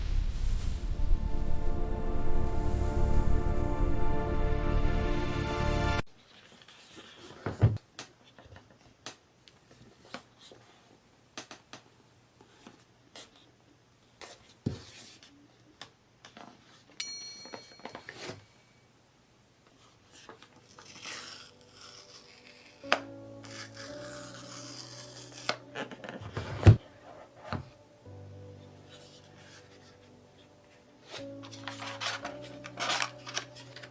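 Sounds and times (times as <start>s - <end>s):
cardboard and plastic tearing: 20.2s - 26.8s, 31.1s - 33.9s.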